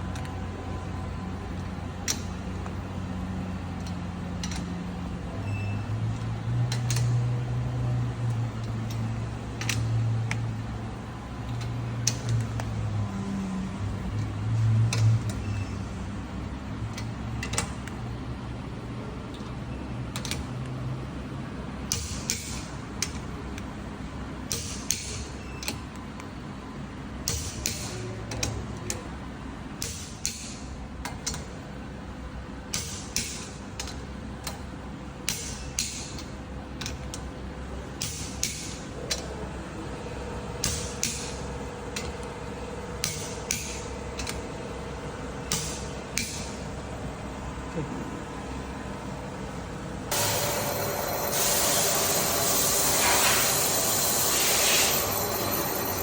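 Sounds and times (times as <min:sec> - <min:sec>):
steady tone: 0:50.1 - 0:56.0.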